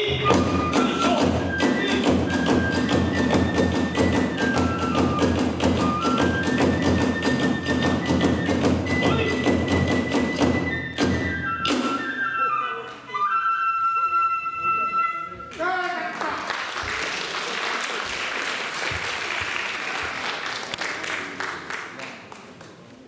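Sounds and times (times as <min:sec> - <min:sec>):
drum beat: 0:00.0 - 0:12.0
high transverse flute melody: 0:00.0 - 0:15.6.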